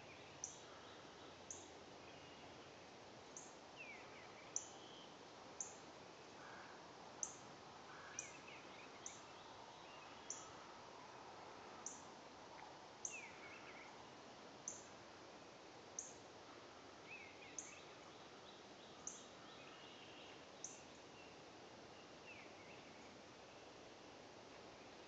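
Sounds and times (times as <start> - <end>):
lower bird chirping: 0.0 - 5.8, 6.4 - 10.6, 11.8 - 12.1, 13.0 - 15.0, 16.0 - 16.2, 17.0 - 23.8
faint background hiss: 0.0 - 25.0.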